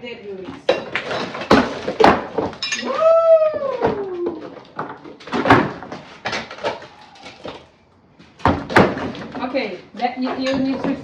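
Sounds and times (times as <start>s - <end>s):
bricks being struck and pried: 0.8s - 2.7s, 8.4s - 9.3s.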